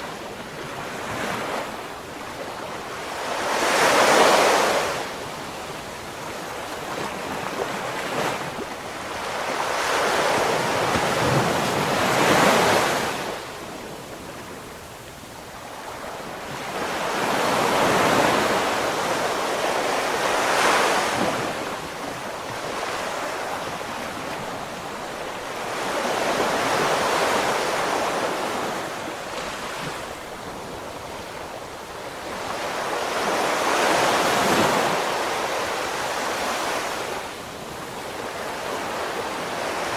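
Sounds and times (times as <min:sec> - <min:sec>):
wind on microphone: 0:00.0 - 0:39.9
ocean waves breaking: 0:06.2 - 0:13.7, 0:15.9 - 0:39.9.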